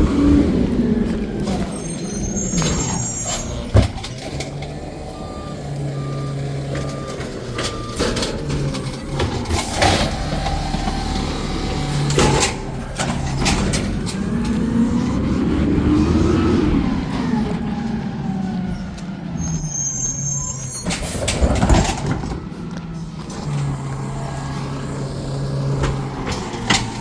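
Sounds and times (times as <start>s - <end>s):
truck engine running: 0.0s - 20.4s, 21.0s - 27.0s
backup alarm beeping: 1.4s - 15.3s.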